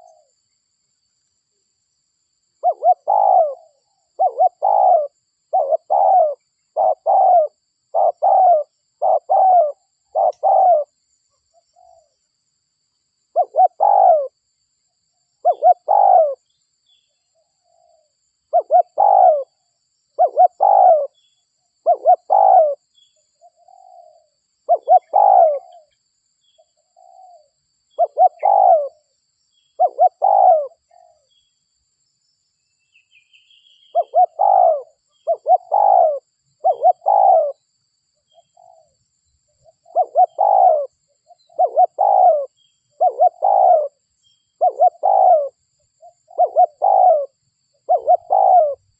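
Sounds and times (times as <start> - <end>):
dove cooing: 0.0 - 0.3, 2.6 - 11.0, 13.3 - 14.4, 15.4 - 16.5, 17.6 - 19.6, 20.2 - 21.2, 21.8 - 22.8, 23.4 - 26.0, 26.9 - 29.1, 29.8 - 31.3, 33.8 - 37.6, 38.3 - 39.0, 39.6 - 44.0, 44.6 - 48.9
bird chirp: 0.0 - 48.9.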